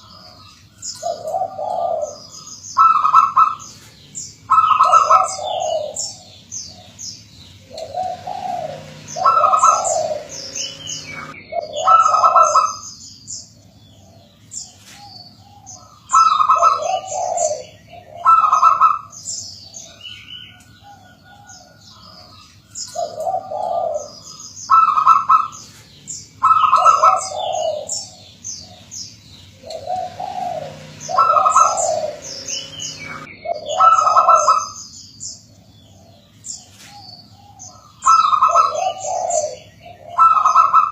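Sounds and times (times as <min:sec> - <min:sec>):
dove cooing: 0:00.0 - 0:12.9, 0:13.5 - 0:34.9, 0:35.5 - 0:40.9
small birds chirping: 0:00.0 - 0:40.9.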